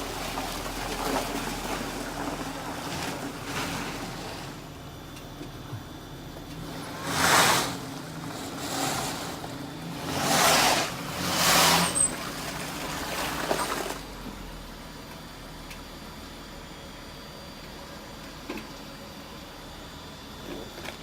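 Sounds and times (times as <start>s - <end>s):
low engine hum: 0.0s - 16.6s.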